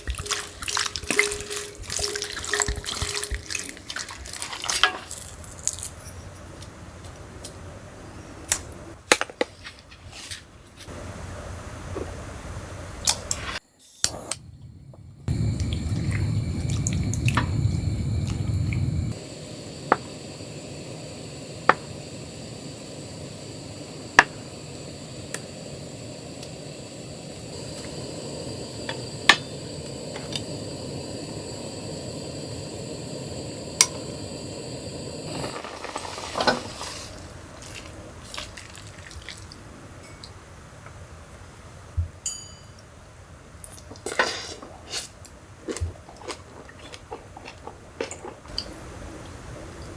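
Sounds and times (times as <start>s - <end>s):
dishes clinking: 0.0s - 3.8s, 42.3s - 42.8s
steady rain hiss: 0.0s - 4.2s, 15.3s - 42.0s, 48.5s - 49.9s.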